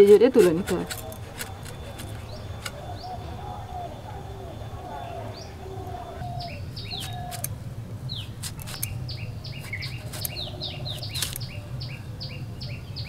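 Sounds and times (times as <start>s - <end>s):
blade slicing banana stem: 0.0s - 2.8s, 8.4s - 9.0s, 9.6s - 11.4s
small birds chirping: 0.0s - 13.0s.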